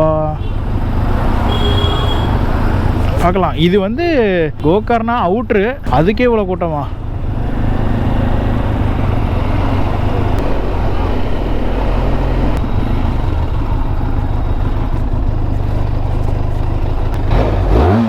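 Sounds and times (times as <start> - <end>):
motorcycle engine at low speed: 0.0 - 3.2, 6.9 - 18.0
road noise: 0.0 - 18.0.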